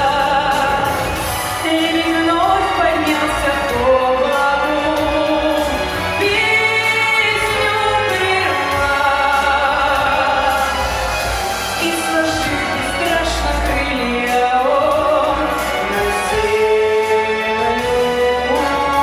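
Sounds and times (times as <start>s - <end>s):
musical accompaniment: 0.0s - 19.0s
person singing: 0.0s - 19.0s.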